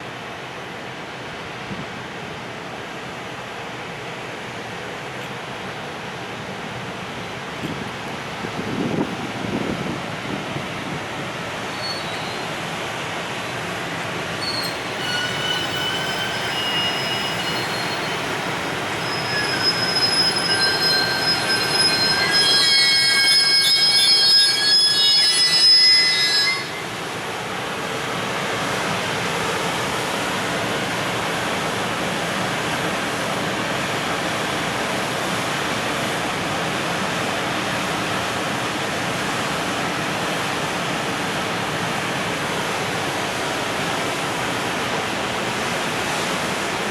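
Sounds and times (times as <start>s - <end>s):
train wheels squealing: 11.6s - 12.6s, 14.3s - 27.1s
train wagons rolling: 14.3s - 26.8s.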